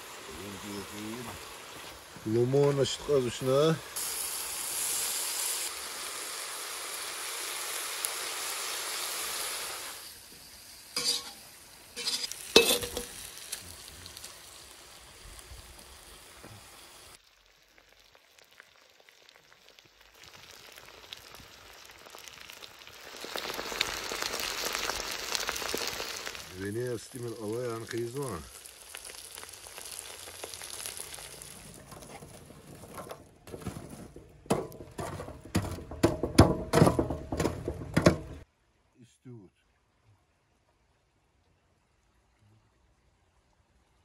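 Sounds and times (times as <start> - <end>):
food sizzling in a pot: 0.0 - 32.1
metal spoon scraping a pot: 11.0 - 11.4, 12.0 - 13.1.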